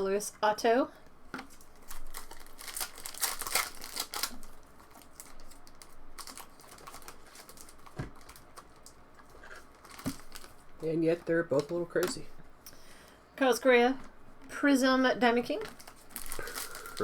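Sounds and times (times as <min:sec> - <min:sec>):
card wrappers crinkling: 0:01.5 - 0:12.0, 0:15.6 - 0:17.0.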